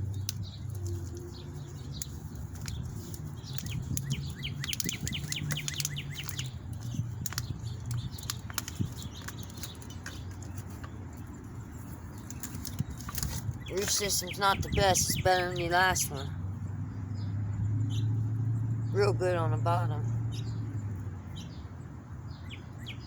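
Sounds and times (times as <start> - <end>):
birds chirping and singing: 0.0 - 23.0
wind rumble on microphone: 0.0 - 23.0.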